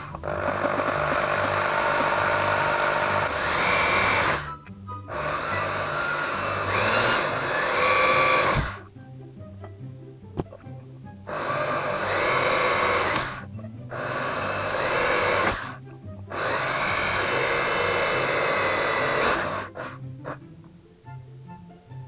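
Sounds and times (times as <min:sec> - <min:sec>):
electric drill drilling metal can: 0:00.0 - 0:08.8, 0:11.3 - 0:20.0.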